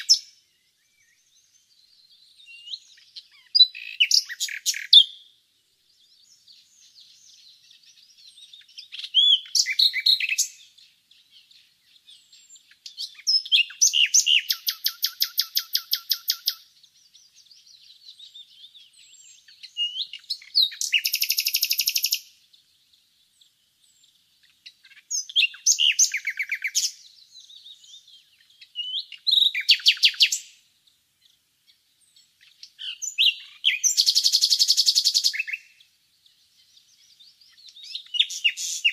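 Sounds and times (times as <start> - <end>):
faint birdsong: 0.0 - 38.9
nightingale singing: 0.0 - 38.9.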